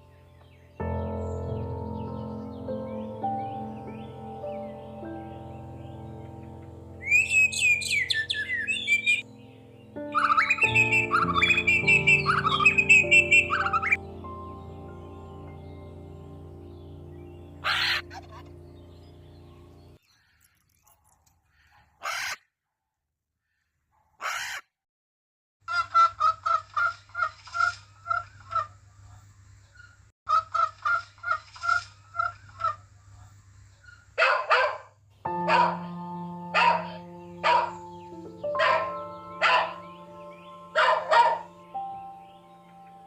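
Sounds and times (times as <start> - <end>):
poultry calling: 6.2 - 9.2, 10.0 - 14.0, 17.6 - 18.6, 33.7 - 43.0.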